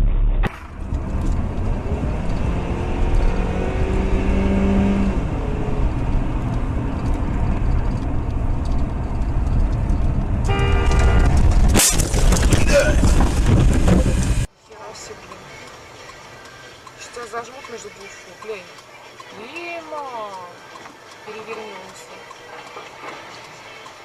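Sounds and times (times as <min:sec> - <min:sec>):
car road and engine rumble: 0:00.0 - 0:24.0
car horn: 0:10.4 - 0:11.6.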